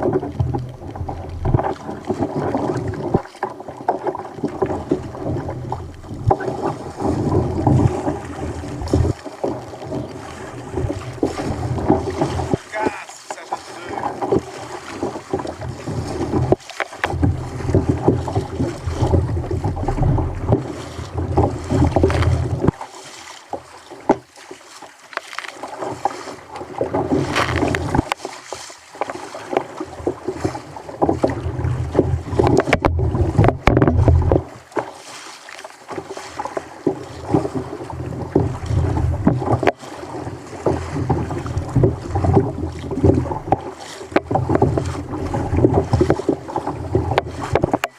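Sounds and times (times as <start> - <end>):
water splashing against hull: 0.0 - 47.9
wind buffeting microphone: 15.3 - 22.8.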